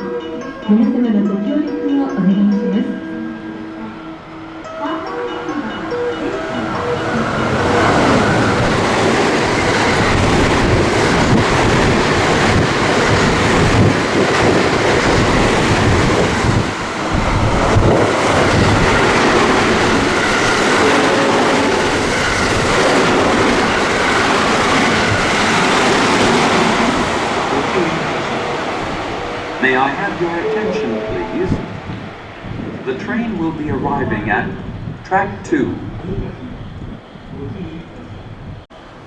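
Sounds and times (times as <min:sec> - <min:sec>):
train wheels rushing on rails: 0:05.9 - 0:33.8.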